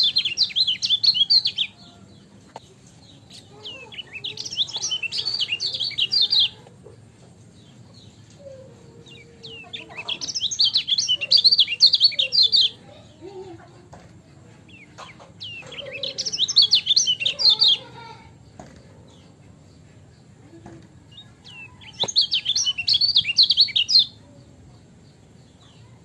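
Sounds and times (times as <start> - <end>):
small bird high chattering: 0.0 - 1.8, 3.2 - 6.7, 8.5 - 13.2, 14.7 - 18.3, 21.1 - 24.2.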